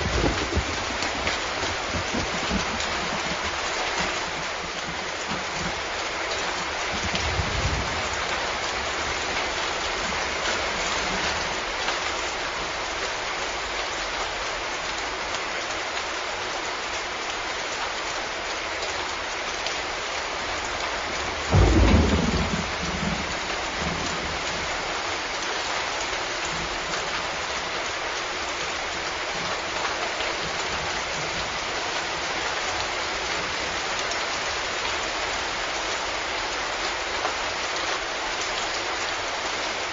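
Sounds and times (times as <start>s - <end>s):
loud thunderclap: 0.0s - 4.2s, 7.0s - 9.3s, 21.4s - 24.5s
heavy rain falling: 0.0s - 39.9s.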